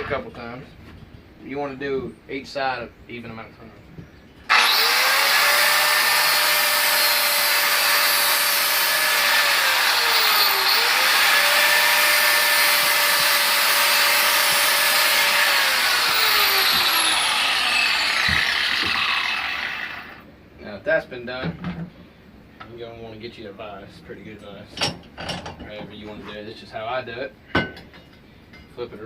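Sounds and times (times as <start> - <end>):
angle grinder grinding steel: 4.5 - 20.2.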